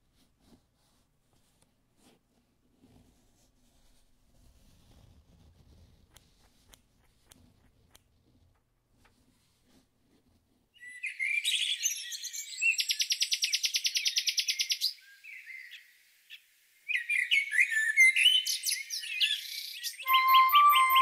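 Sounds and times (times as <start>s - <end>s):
songbird chirping and trilling: 10.8s - 21.0s.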